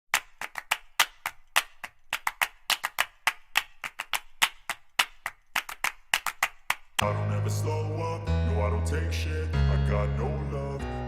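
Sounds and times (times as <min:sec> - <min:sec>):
sharp taps or claps: 0:00.1 - 0:07.0.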